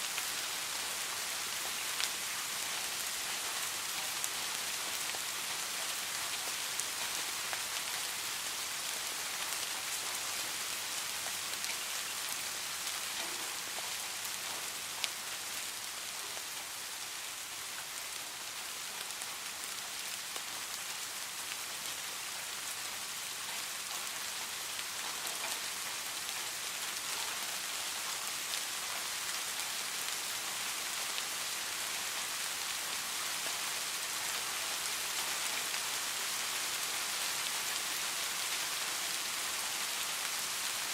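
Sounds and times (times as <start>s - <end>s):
steady rain hiss: 0.0s - 40.9s
raindrop ticks: 13.1s - 15.2s, 23.5s - 26.4s.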